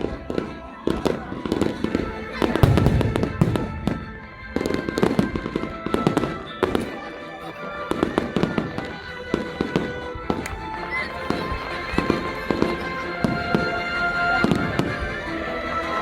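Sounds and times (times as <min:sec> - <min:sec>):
fireworks bangs and crackles: 0:00.0 - 0:07.2, 0:07.8 - 0:10.7, 0:14.4 - 0:15.2
music of long held tones: 0:00.0 - 0:16.0.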